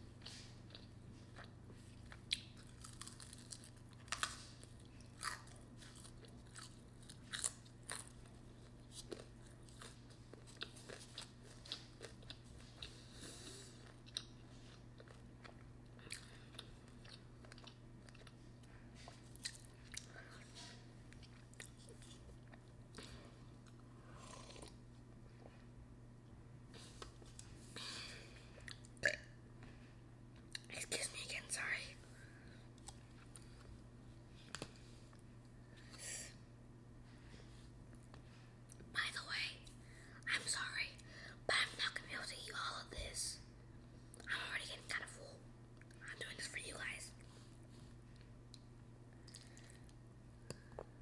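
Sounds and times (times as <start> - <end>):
steady low hum: 0.0 - 51.0
person chewing noodles: 0.2 - 25.6, 47.2 - 50.9.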